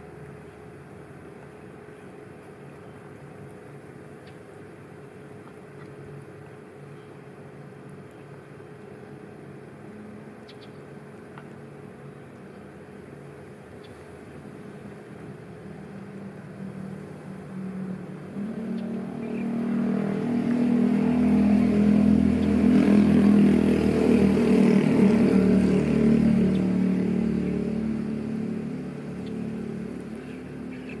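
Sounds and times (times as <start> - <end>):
vehicle engine passing by: 17.5 - 31.0.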